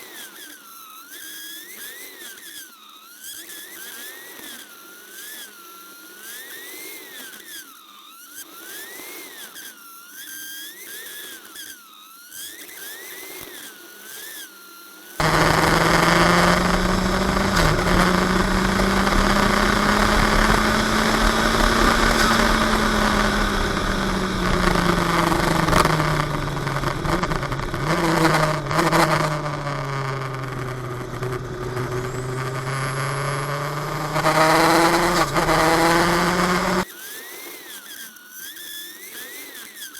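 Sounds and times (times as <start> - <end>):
car engine running hard: 15.2 - 36.8
high thin whine: 15.2 - 36.8
wind and road noise: 15.2 - 36.8.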